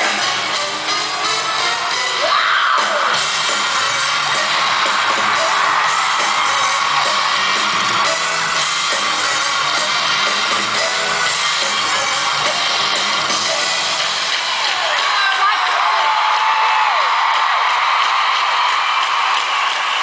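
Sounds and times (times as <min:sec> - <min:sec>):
live pop band playing: 0:00.0 - 0:15.5
audience yelling and whooping: 0:00.0 - 0:20.0.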